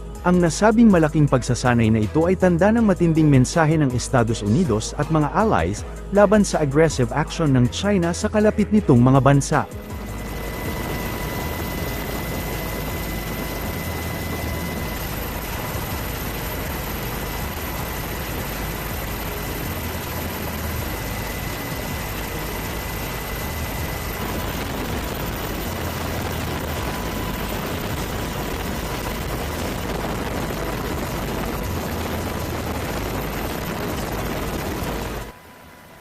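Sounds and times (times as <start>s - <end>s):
faint steady whine: 9.6s - 36.0s
aircraft engine rush: 9.7s - 36.0s.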